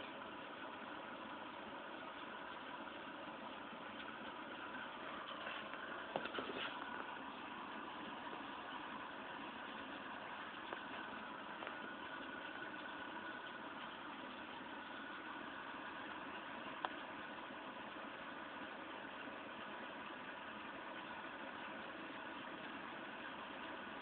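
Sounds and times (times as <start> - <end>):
steady rain hissing: 0.0 - 24.0
drips ticking: 6.8 - 23.8.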